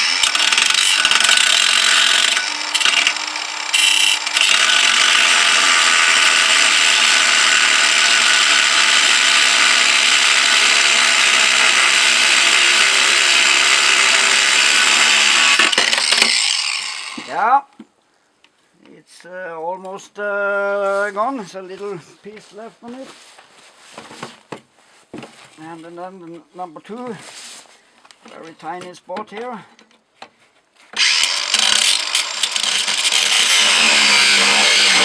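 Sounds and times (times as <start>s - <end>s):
power tool blade cutting metal: 0.0s - 17.3s, 31.0s - 35.0s.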